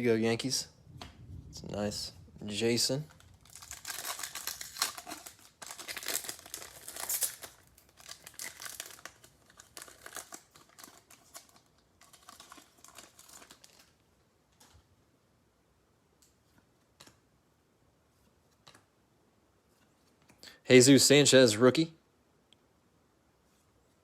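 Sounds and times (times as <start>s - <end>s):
foil wrapper crinkling and tearing: 3.1s - 14.0s.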